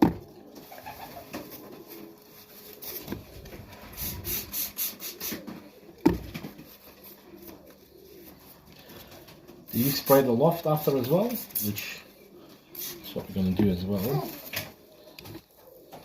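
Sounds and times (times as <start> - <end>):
feathers rubbing and rustling: 0.5 - 12.0, 12.7 - 15.9
spray bottle hissing: 4.0 - 5.4.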